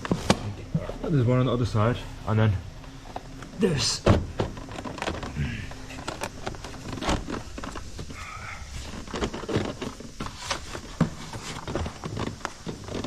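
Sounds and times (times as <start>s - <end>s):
plastic covers clicking and knocking: 2.8s - 13.0s.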